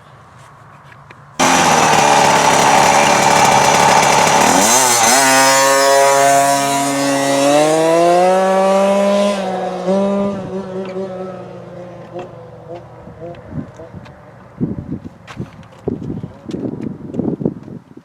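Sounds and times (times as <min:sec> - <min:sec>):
dirt bike engine at high revs: 0:01.4 - 0:14.0.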